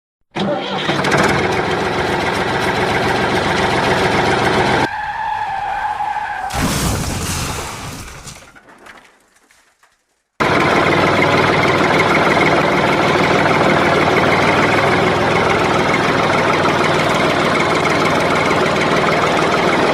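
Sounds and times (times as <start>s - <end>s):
vehicle engine running: 1.0s - 4.9s, 10.4s - 19.9s.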